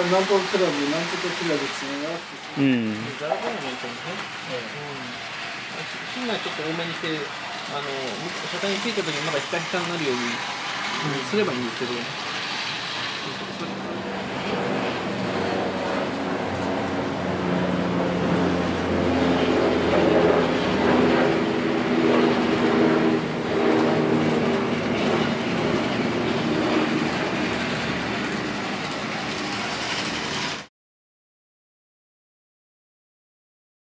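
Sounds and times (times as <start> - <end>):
model train motor hum: 0.0 - 17.2, 23.3 - 30.7
wheels rattling on rails: 0.0 - 30.7.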